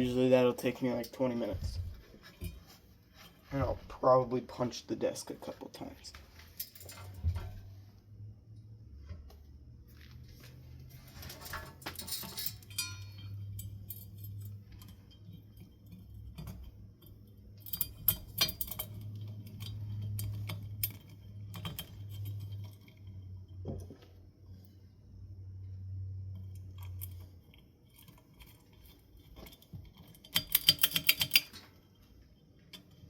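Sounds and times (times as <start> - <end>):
low steady hum: 0.0 - 33.0
small metal parts clinking: 6.4 - 7.6, 11.2 - 23.3, 26.5 - 32.0.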